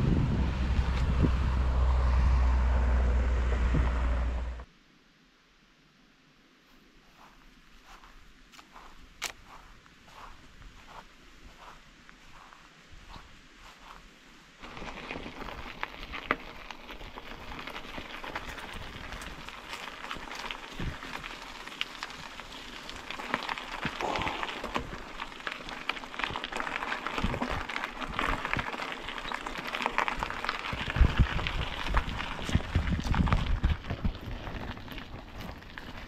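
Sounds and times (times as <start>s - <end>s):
low thumps: 0.0s - 4.7s
bike tyres crunching grit: 7.2s - 36.0s.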